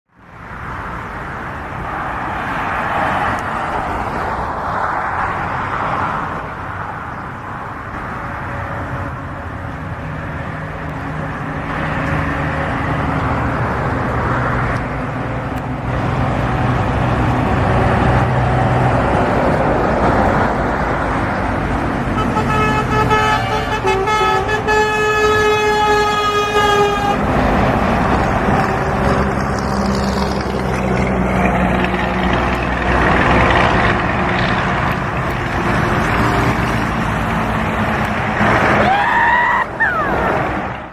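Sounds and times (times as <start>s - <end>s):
truck driving past: 0.1s - 40.9s
multi-tone air horn: 22.2s - 27.3s.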